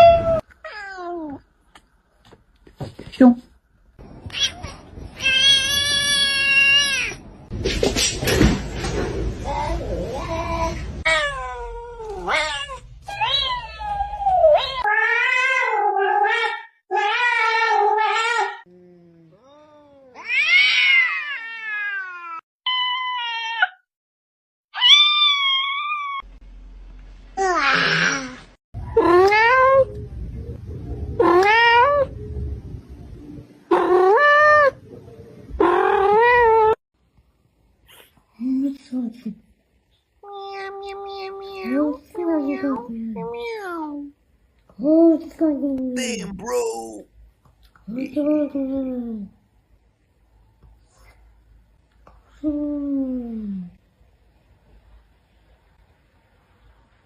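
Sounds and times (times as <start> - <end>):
cat yowling: 24.8 - 26.3.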